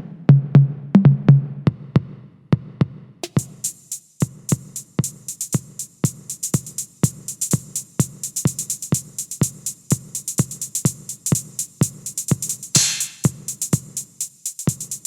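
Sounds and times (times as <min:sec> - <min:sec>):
electronic drum beat: 0:00.0 - 0:15.0
hi-hat pattern: 0:03.2 - 0:15.0.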